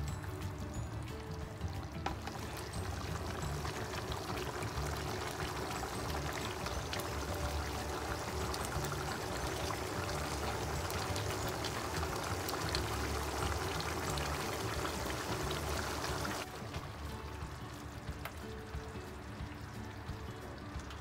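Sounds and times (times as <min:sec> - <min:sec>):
sauce bubbling and popping: 0:00.2 - 0:21.0.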